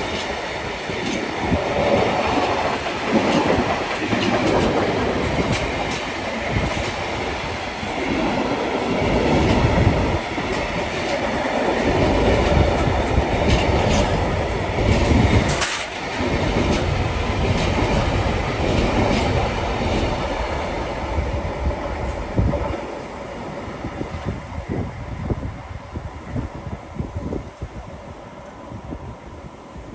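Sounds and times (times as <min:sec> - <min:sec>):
wheels clicking over rail joints: 0:00.0 - 0:20.9
train wheels rumbling on track: 0:00.0 - 0:29.9.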